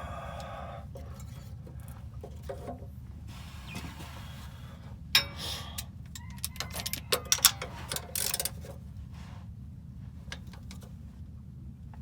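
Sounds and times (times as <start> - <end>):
steady low hum: 0.0 - 6.2
hand tools clicking and tapping: 5.2 - 8.8
ratchet clicking: 6.1 - 8.6.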